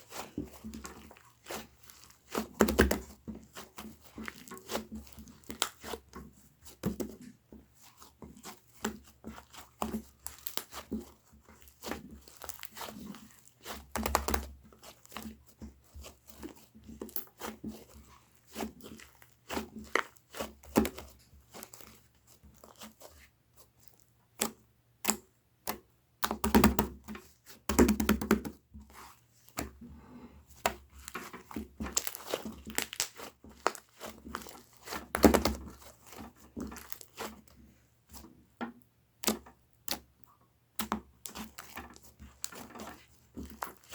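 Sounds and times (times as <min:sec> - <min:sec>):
slime squelching: 0:00.0 - 0:38.2, 0:40.8 - 0:43.9
slime crackling and popping: 0:10.2 - 0:10.8, 0:12.2 - 0:13.0, 0:31.0 - 0:36.1.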